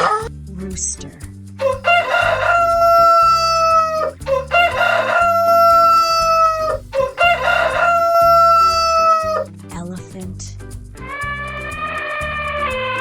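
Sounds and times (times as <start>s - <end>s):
rooster crowing: 1.6s - 9.5s.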